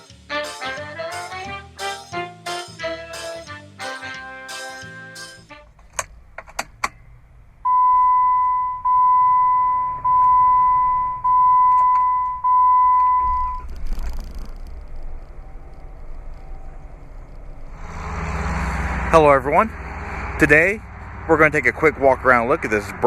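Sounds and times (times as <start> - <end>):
low rumble: 5.8 - 23.0.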